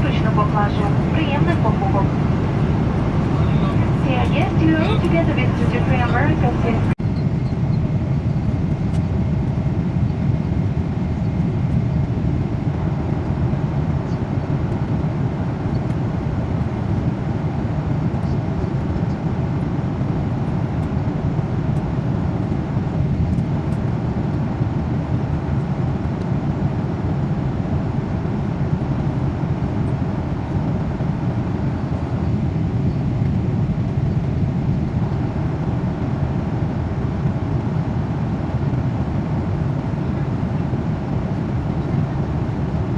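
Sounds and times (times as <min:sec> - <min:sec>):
airliner cabin engine rush: 0:00.0 - 0:09.3.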